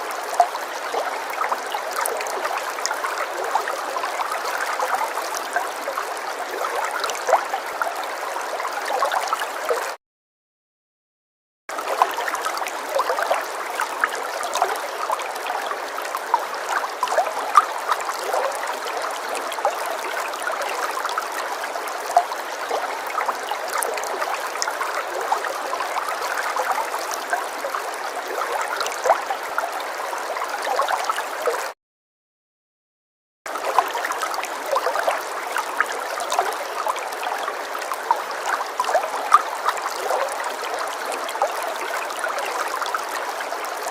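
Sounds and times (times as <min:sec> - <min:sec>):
stream water gurgling: 0:00.0 - 0:10.0, 0:11.7 - 0:31.8, 0:33.5 - 0:43.9.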